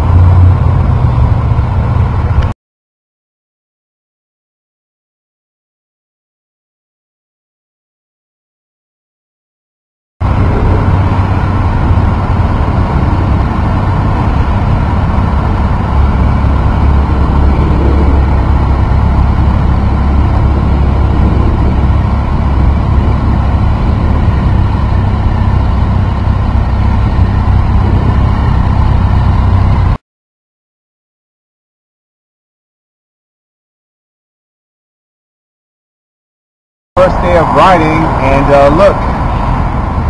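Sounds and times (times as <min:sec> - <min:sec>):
motorcycle engine droning: 0:00.0 - 0:02.5, 0:10.2 - 0:30.0.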